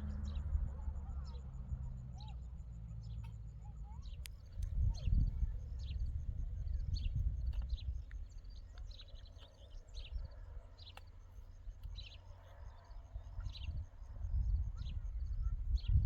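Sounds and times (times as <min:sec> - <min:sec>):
low rumble: 0:00.0 - 0:08.7
small birds chirping: 0:00.0 - 0:16.0.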